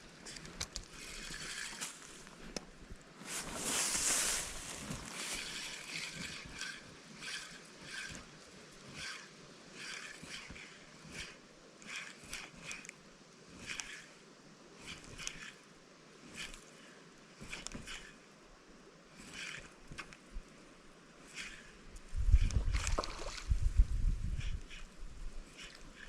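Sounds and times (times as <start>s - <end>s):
water sloshing and splashing: 22.5s - 23.7s.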